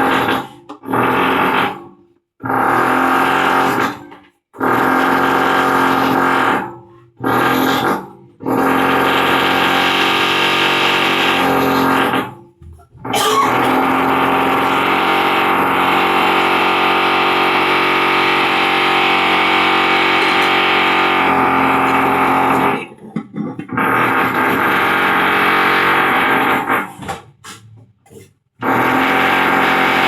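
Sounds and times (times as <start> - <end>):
loud mechanical drone: 13.3 - 22.9, 28.6 - 30.0.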